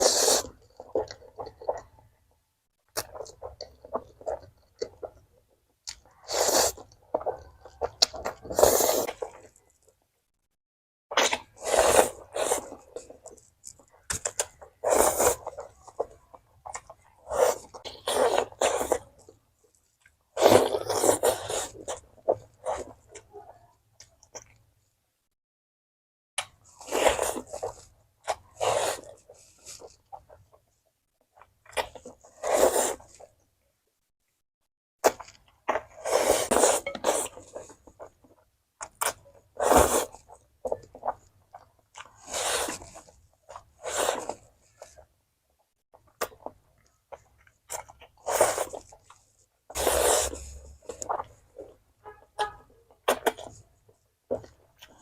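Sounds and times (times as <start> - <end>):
noisy mouth eating sounds: 0.0 - 2.0, 2.9 - 9.9, 11.1 - 24.6, 35.0 - 45.0, 46.0 - 51.8
biting and chewing: 0.0 - 2.2, 2.9 - 10.0, 11.1 - 24.7, 26.4 - 33.4, 35.0 - 45.1, 45.9 - 51.9, 52.9 - 53.7.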